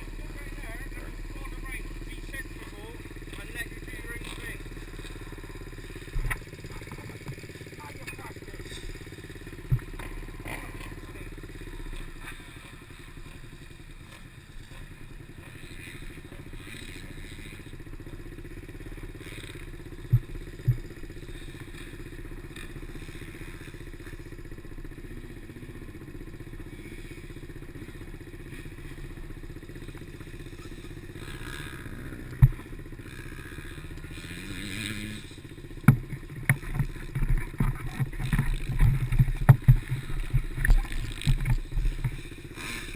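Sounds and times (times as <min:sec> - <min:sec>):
small motorbike engine running: 0:00.0 - 0:42.9
sharp knocks: 0:35.8 - 0:42.2
thumps: 0:35.8 - 0:42.2.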